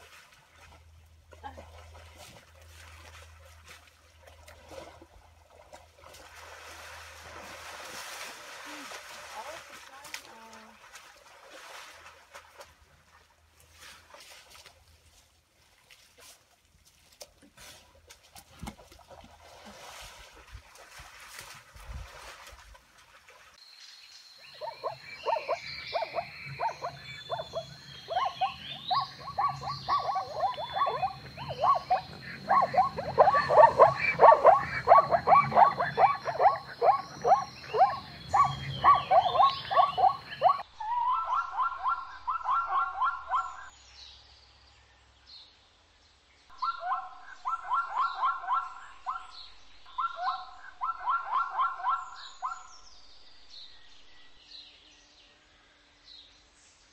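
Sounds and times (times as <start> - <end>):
overlapping bark-like animal calls: 24.4 - 43.7, 46.6 - 49.3, 49.9 - 52.7
zebra yelping barks: 24.6 - 43.7, 46.6 - 49.2, 50.0 - 52.6.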